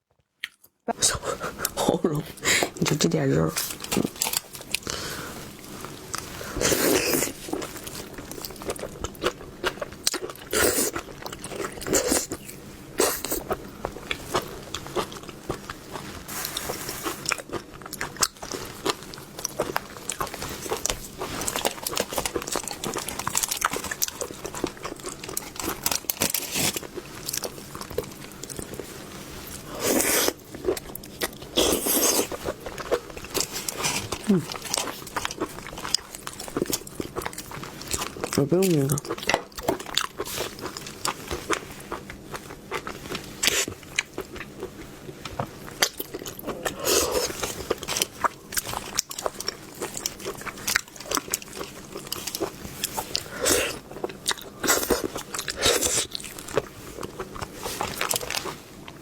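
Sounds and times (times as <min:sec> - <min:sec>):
chewing with wet clicks: 0:32.2 - 0:58.5.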